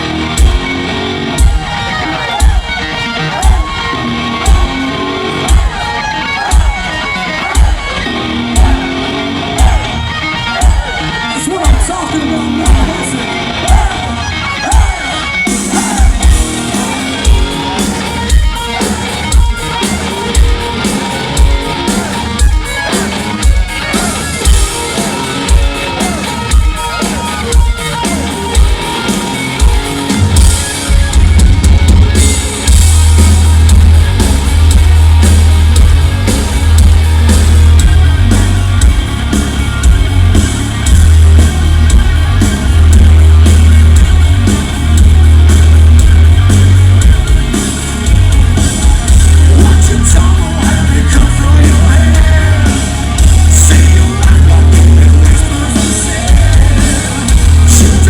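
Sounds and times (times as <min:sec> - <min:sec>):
electric guitar riff: 0:00.0 - 0:58.0
heavy metal band playing: 0:00.0 - 0:58.0.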